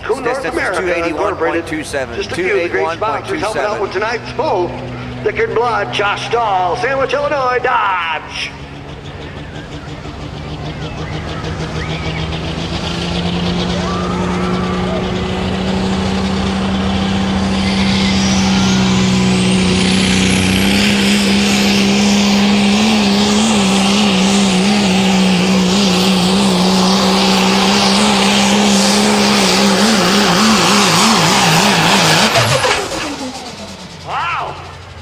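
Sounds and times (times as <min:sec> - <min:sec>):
diesel truck at full throttle: 0:00.0 - 0:35.0
turbo whistle: 0:10.7 - 0:12.4, 0:17.5 - 0:19.1.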